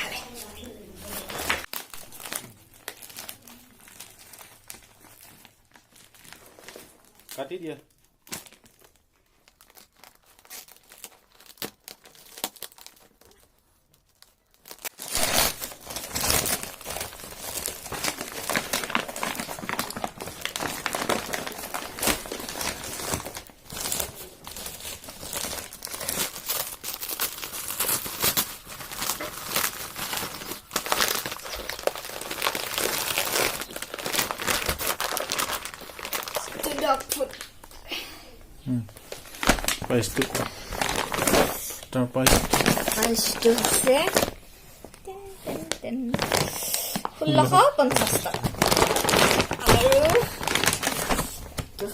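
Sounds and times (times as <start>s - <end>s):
crinkling and crackling packaging: 0.0s - 38.0s, 38.8s - 51.9s
packaging being cut and torn: 9.7s - 13.4s, 14.6s - 37.4s, 39.4s - 41.6s, 42.2s - 44.3s, 47.3s - 51.6s.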